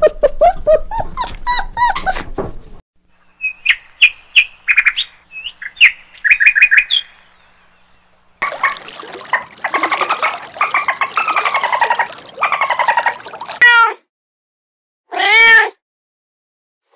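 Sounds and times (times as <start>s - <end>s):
small dog whining: 0.0s - 2.4s
flamingos honking: 8.4s - 13.6s.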